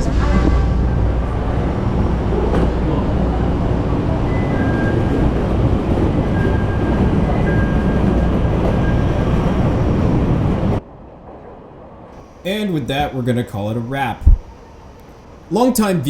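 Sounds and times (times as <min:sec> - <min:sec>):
train rumble inside car: 0:00.0 - 0:12.2.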